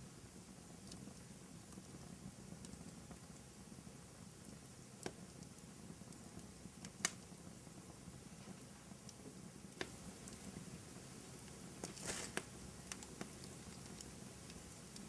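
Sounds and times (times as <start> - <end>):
fire crackles and pops: 0.0 - 15.0
wood fire burning: 0.0 - 15.0.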